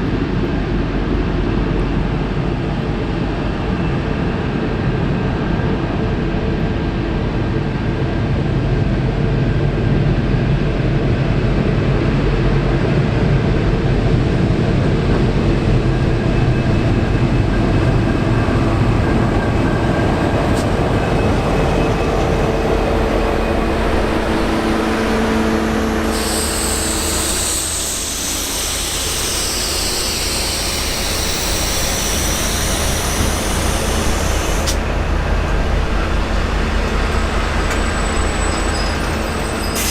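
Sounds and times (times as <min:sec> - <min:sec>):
diesel locomotive engine hum: 0:00.0 - 0:39.9
high-pitched metal squeal: 0:37.2 - 0:39.9.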